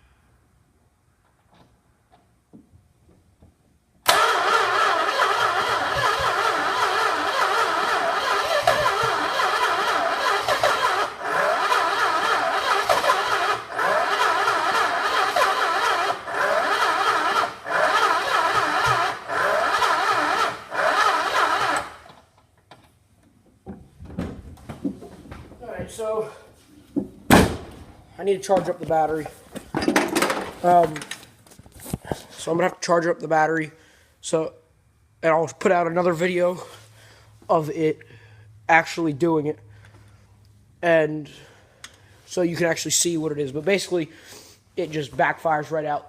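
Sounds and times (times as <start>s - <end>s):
starter motor cranking engine: 4.1s - 22.2s.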